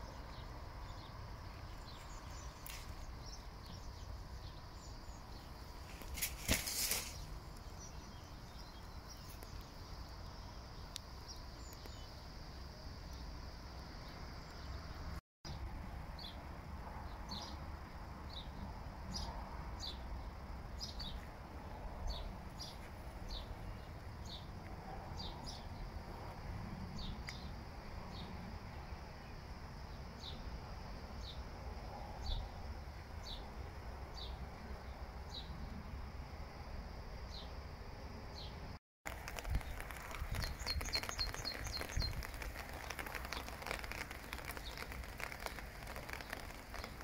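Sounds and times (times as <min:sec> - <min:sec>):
small bird chirping: 0:39.1 - 0:47.0.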